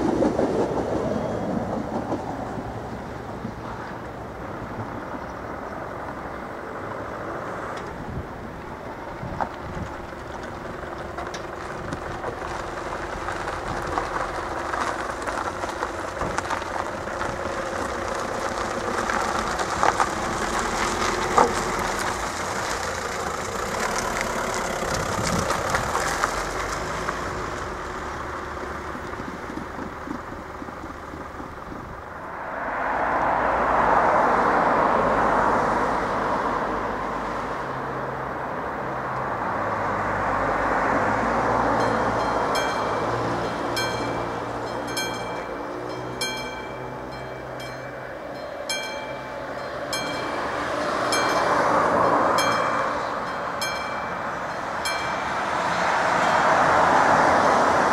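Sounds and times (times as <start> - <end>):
train wheels clicking on rails: 0.0 - 5.2, 8.6 - 32.1
passing traffic rushing: 0.0 - 57.9
train rumbling past: 0.0 - 57.9.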